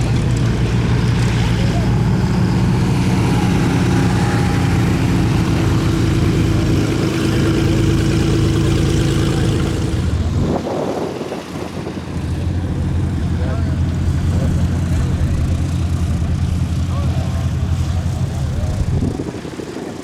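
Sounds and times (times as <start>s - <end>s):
light aircraft engine drone: 0.0s - 20.0s.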